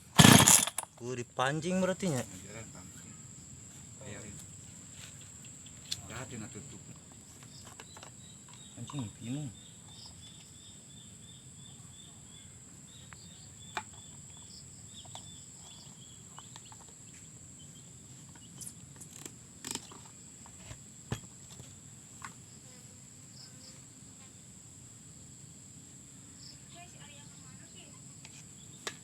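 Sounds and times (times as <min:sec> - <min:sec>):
handling clicks and knocks: 0:00.0 - 0:01.0
insects droning: 0:00.0 - 0:29.0.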